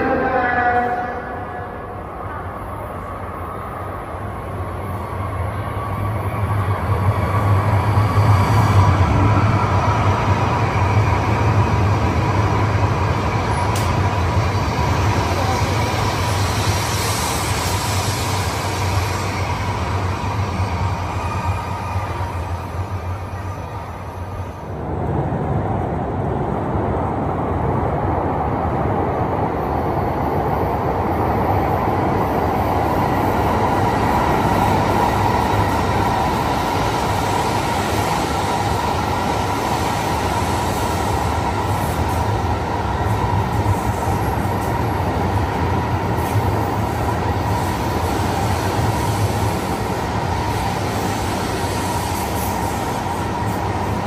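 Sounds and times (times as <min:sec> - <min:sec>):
train rushing through station: 0:00.0 - 0:54.0.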